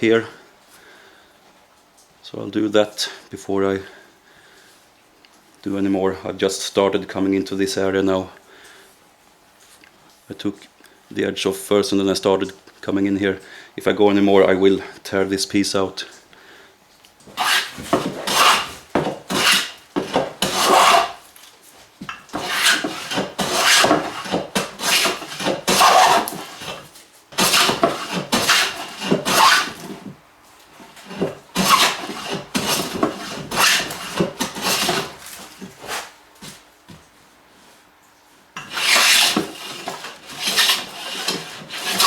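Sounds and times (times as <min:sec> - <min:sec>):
hand plane shaving wood: 0:17.3 - 0:21.2, 0:22.3 - 0:30.1, 0:30.9 - 0:36.1, 0:38.6 - 0:42.0.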